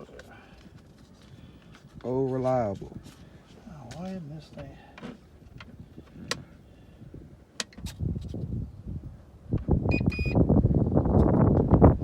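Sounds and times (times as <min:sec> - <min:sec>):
short electronic beeps: 0:09.9 - 0:10.4.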